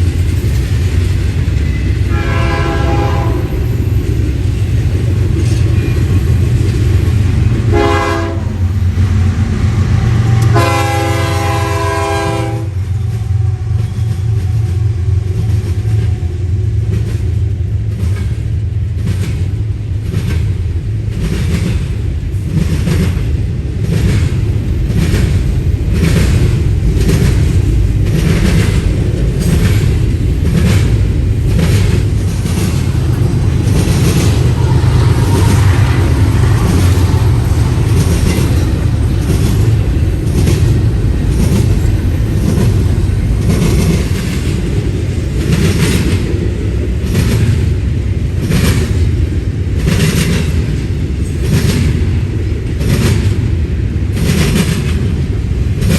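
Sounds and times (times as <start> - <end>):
train air horn blasts: 2.1 - 3.6, 7.7 - 8.6, 9.9 - 15.7, 34.0 - 37.4
wheels clicking over rail joints: 16.9 - 47.8
heavy low rumble: 20.0 - 47.1.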